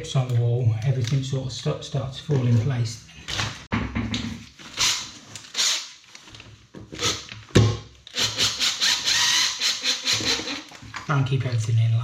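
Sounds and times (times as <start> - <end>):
power drill drilling: 8.1 - 10.7.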